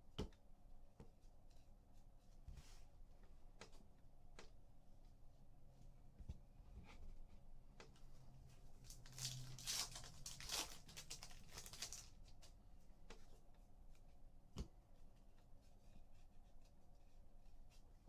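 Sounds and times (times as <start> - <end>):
foil wrapper tearing and crinkling: 8.8 - 12.2.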